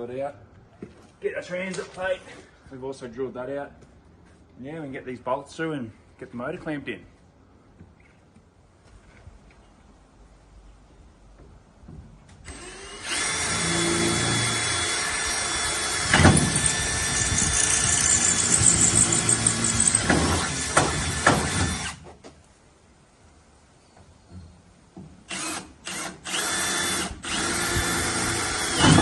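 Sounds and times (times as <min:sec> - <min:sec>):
electric power drill whining: 0:12.5 - 0:22.0, 0:25.3 - 0:29.0.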